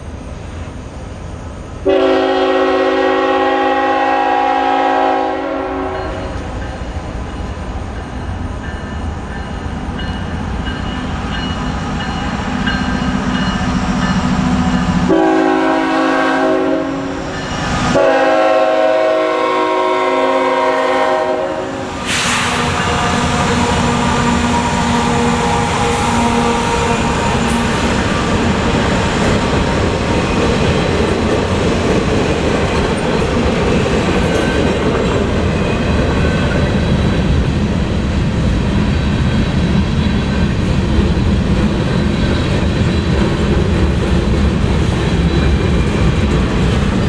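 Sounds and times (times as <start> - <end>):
train rumbling: 0.0 - 47.0
train rushing past: 0.0 - 47.0
locomotive air horn: 1.9 - 6.2, 15.0 - 17.2, 17.9 - 27.7.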